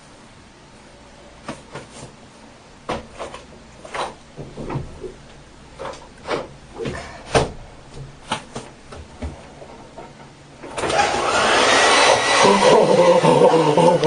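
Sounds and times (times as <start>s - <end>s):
hair dryer blowing: 10.8s - 14.0s.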